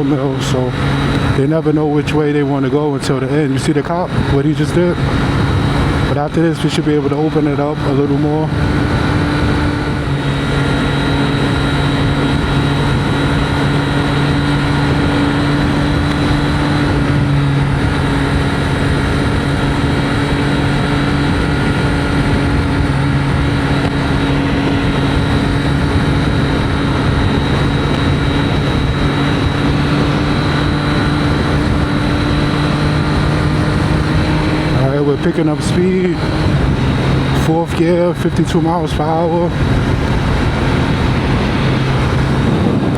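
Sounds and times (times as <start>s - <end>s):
motorcycle engine cruising: 0.0s - 42.9s
wind and road noise: 0.0s - 42.9s.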